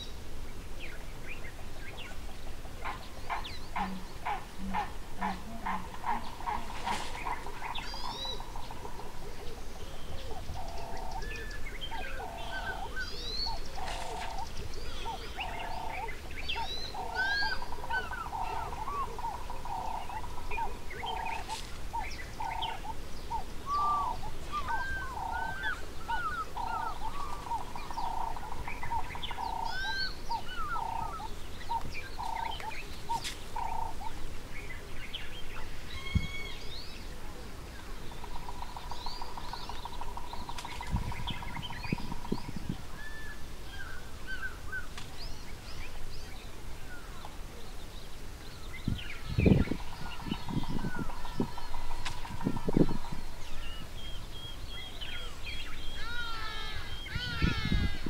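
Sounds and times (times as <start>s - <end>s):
bird hooting: 2.8s - 21.6s, 22.4s - 34.2s
birds chirping and whistling: 9.9s - 34.1s, 48.8s - 58.0s.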